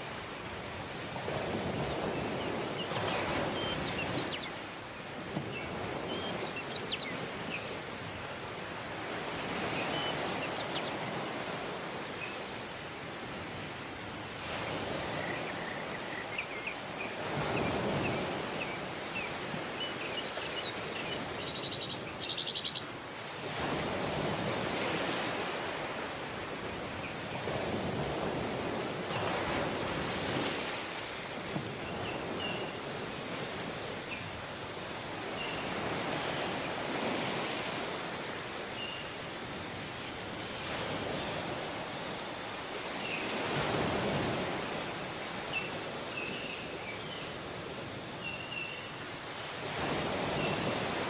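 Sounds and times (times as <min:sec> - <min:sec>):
waves washing onto beach: 0:00.0 - 0:51.0
small birds chirping: 0:18.6 - 0:22.9.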